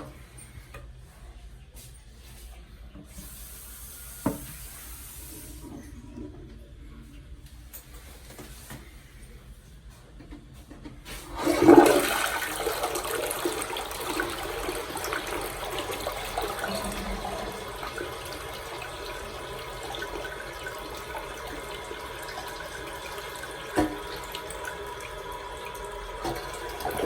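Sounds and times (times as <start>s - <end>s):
toilet flushing: 3.0s - 7.0s, 11.0s - 27.0s.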